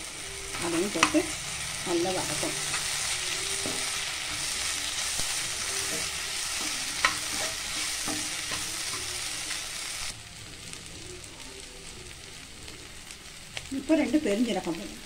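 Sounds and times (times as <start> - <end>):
food sizzling in oil: 0.0 - 15.0
metal spatula scraping a pan: 0.4 - 9.5.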